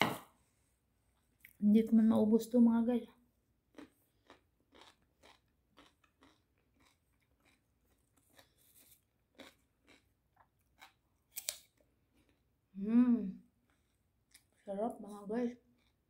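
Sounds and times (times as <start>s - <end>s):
person chewing crisp food: 3.6s - 12.6s, 13.6s - 14.6s, 15.6s - 16.0s.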